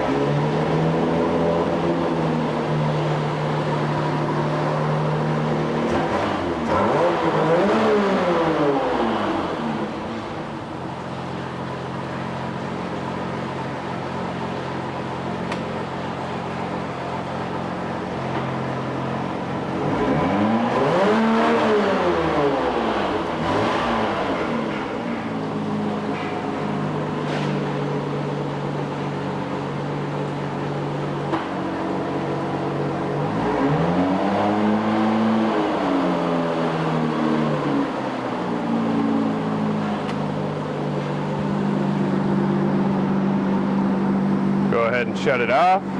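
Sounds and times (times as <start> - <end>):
boat engine idling and revving: 0.0 - 45.9.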